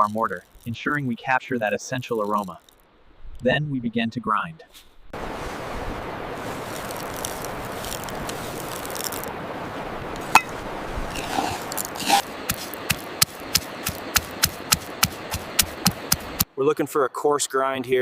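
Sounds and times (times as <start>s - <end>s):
pestle grinding peppercorns: 6.7s - 9.3s, 11.1s - 16.5s
pestle pounding in mortar: 12.0s - 16.5s.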